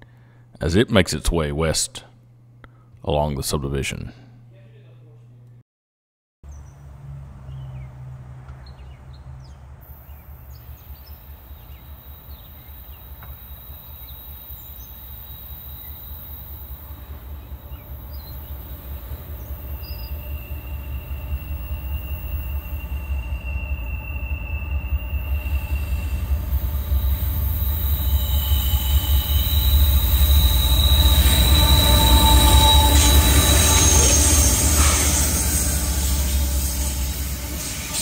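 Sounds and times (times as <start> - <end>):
freight train rumble: 8.8 - 38.0
thin high tone: 9.9 - 38.0.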